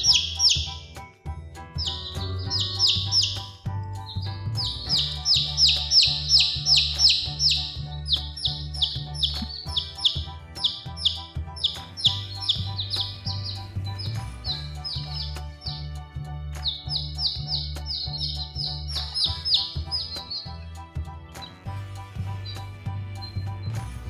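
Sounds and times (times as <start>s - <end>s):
background music: 0.0s - 24.0s
baby chicks cheeping: 1.8s - 3.5s, 4.6s - 15.8s, 16.6s - 20.6s.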